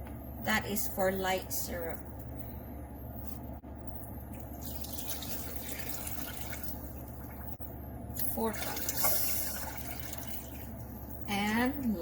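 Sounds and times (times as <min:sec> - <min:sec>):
water pouring into a pot: 0:04.6 - 0:07.5, 0:08.4 - 0:10.7.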